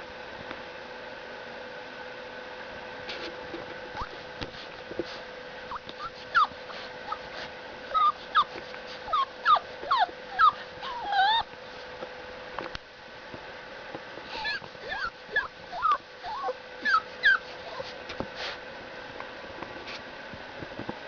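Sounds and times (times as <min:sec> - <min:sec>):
puppy whimpering and yipping: 0:04.0 - 0:04.2, 0:05.7 - 0:11.5, 0:14.3 - 0:18.0.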